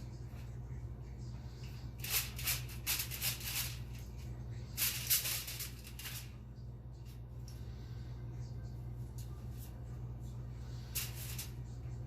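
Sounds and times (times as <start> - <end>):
steady low hum: 0.0 - 12.0
aluminum foil crinkling: 2.0 - 4.0.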